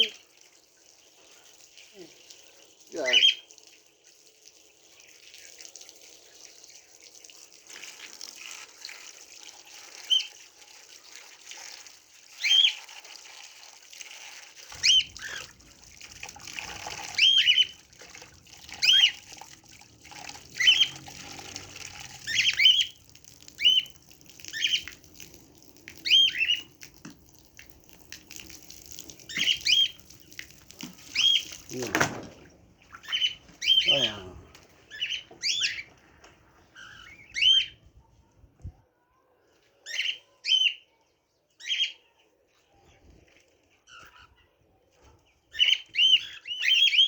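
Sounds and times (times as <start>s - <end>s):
hiss of running water: 14.3s - 32.3s
bird chirping: 14.7s - 19.4s, 20.0s - 27.0s, 28.3s - 38.0s, 45.2s - 47.0s.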